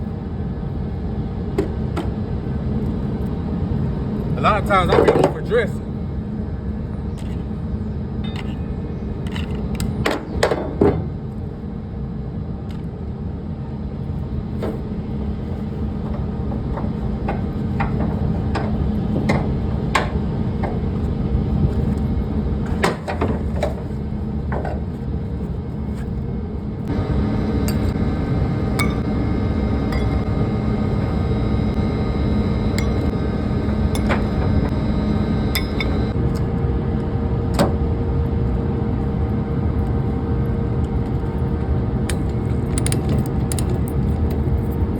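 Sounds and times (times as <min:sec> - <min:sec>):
low mechanical hum: 0:00.0 - 0:44.9
sharp knocks and clanks: 0:16.0 - 0:20.9, 0:26.9 - 0:36.2.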